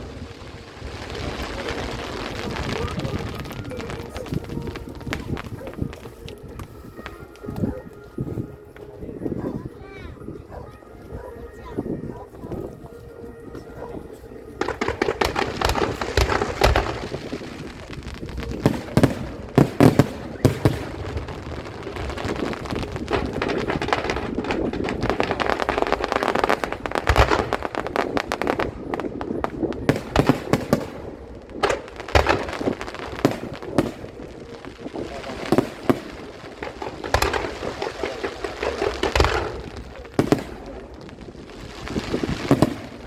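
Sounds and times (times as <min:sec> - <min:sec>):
continuous crackling: 0:00.0 - 0:43.0
firework shells bursting: 0:14.6 - 0:43.0.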